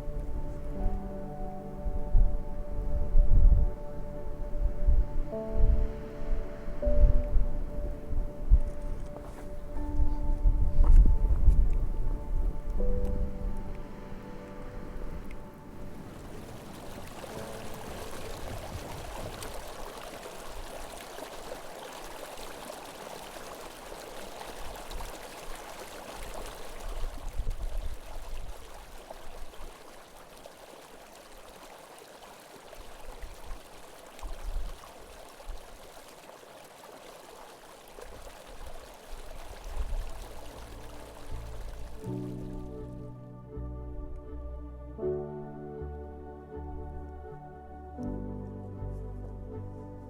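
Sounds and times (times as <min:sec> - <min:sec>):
wind buffeting microphone: 0:00.0 - 0:21.6, 0:24.4 - 0:29.6, 0:38.1 - 0:42.8
strong wind gusting: 0:01.8 - 0:20.0.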